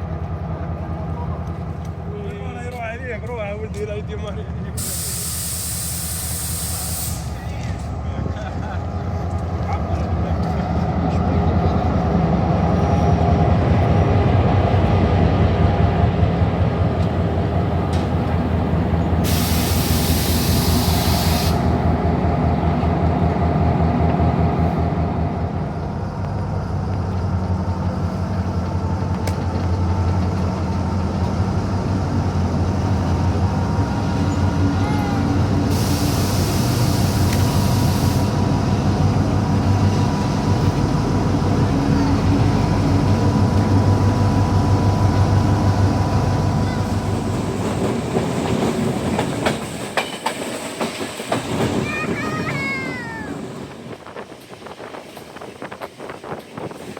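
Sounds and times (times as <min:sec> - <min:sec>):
train running rumble: 0:00.0 - 0:56.9
compressed air hiss: 0:04.8 - 0:07.4, 0:19.2 - 0:21.8, 0:35.6 - 0:38.5.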